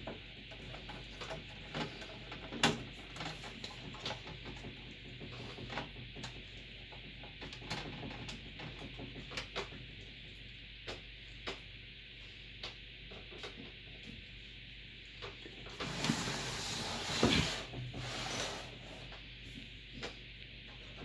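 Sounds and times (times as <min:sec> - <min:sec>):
low electrical hum and hiss: 0:00.0 - 0:21.0.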